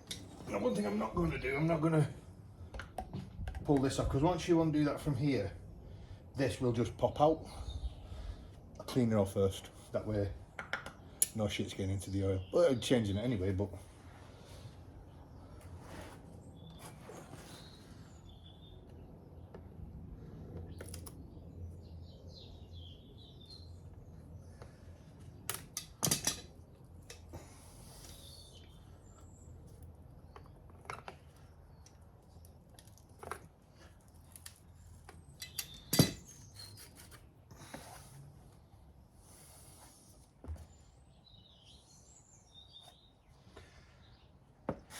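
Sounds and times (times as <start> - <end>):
metal tools clinking: 25.5 - 27.3, 35.4 - 36.6.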